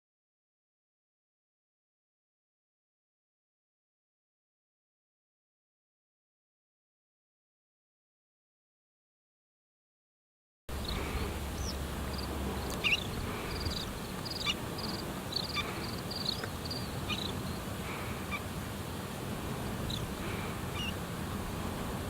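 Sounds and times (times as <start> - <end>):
small birds trilling and chirping: 10.7 - 21.6
low background rush: 10.7 - 22.0.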